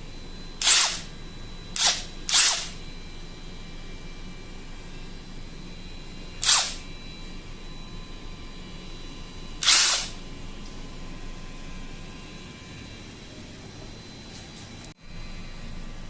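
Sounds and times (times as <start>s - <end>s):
cordless power tool motor blips: 0.0s - 3.2s, 4.0s - 10.7s.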